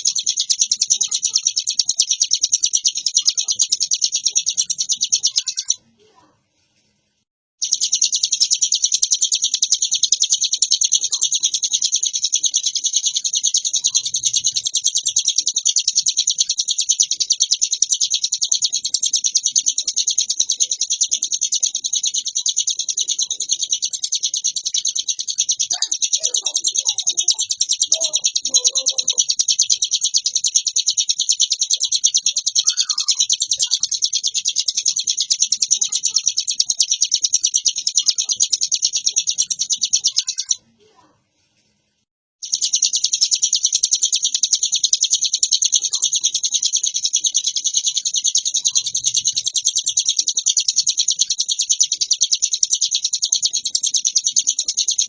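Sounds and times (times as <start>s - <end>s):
songbird rapid chattering song: 0.0s - 6.2s, 7.6s - 41.0s, 42.4s - 55.0s.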